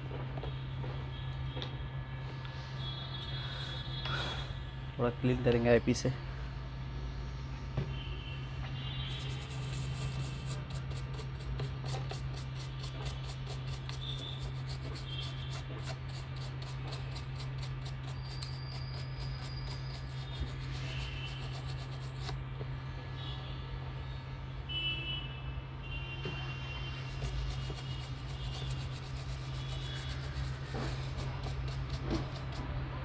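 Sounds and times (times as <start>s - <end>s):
steady low hum: 0.0s - 24.7s, 26.9s - 33.0s
brush scrubbing circuit board: 9.0s - 22.4s, 26.9s - 32.8s.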